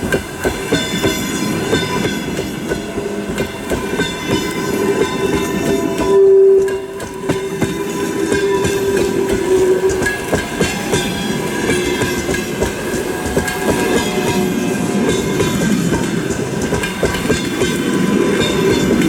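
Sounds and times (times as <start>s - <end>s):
train passing at speed: 0.0s - 19.0s
wheels clattering over rail joints: 0.0s - 19.0s
loud steady tone: 4.2s - 15.4s.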